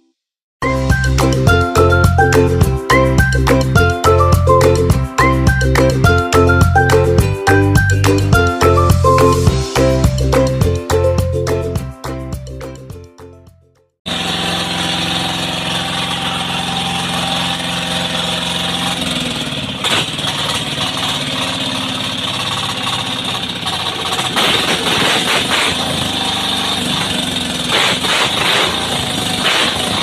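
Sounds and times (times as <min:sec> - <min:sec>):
boat diesel engine knocking: 0:18.4 - 0:25.1.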